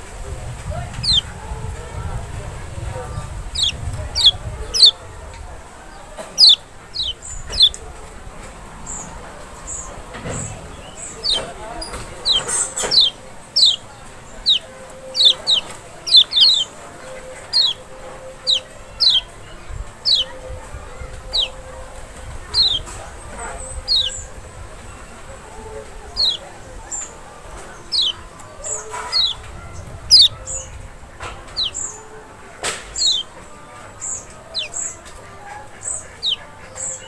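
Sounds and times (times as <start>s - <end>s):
bird calling high sliding notes: 10.7s - 23.0s.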